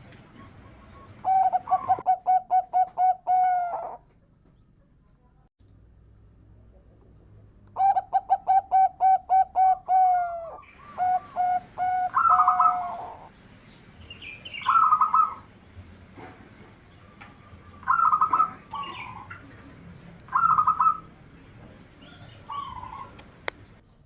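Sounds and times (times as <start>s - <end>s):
dove cooing: 0.0s - 4.0s, 7.8s - 13.3s, 14.5s - 15.5s, 17.0s - 19.6s, 20.3s - 21.2s, 22.0s - 23.5s.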